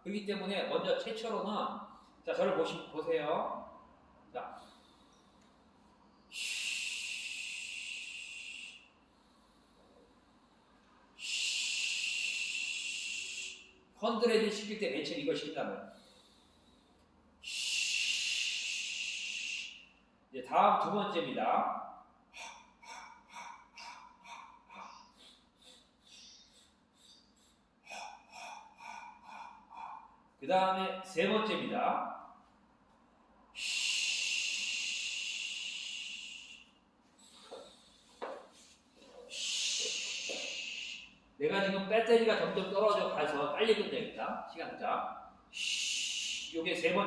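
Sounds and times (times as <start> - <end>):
person hissing breath through teeth: 6.3 - 10.0, 11.2 - 13.8, 15.9 - 20.0, 22.4 - 30.1, 33.6 - 41.2, 45.5 - 46.6.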